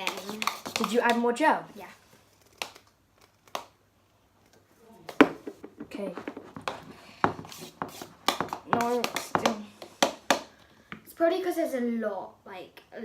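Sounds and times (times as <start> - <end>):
slime stirred in a cup clicking: 0.0 - 1.2.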